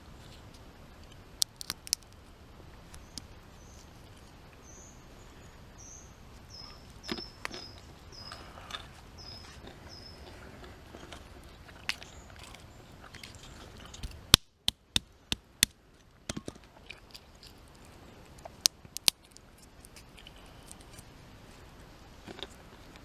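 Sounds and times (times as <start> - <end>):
hazelnut shells cracking: 1.4 - 2.2, 18.4 - 20.8.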